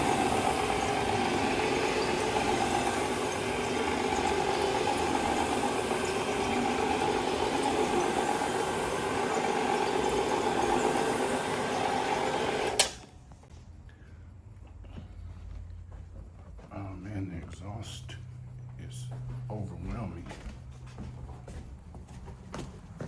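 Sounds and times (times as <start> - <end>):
carpet cleaning machine motor: 0.0 - 13.1.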